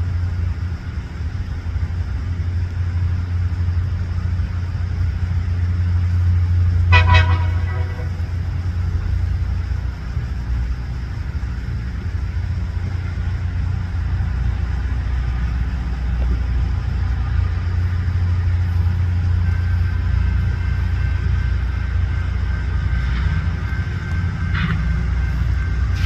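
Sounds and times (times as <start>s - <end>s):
rail grinder diesel drone: 0.0s - 26.0s
horn blast: 6.9s - 8.3s.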